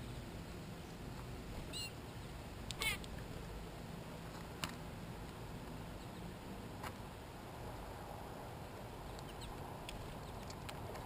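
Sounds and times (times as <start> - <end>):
bird nasal call: 1.7 - 2.0, 2.8 - 3.0.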